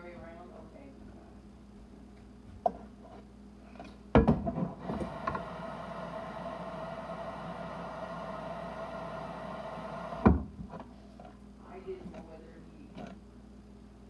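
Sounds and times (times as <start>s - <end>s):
plumbing whine: 4.8s - 10.4s.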